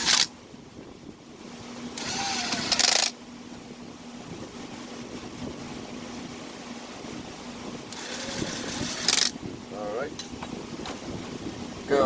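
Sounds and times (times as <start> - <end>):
chainsaw recoil starter cord whirring: 0.0 - 0.3, 2.0 - 3.2, 7.9 - 9.4.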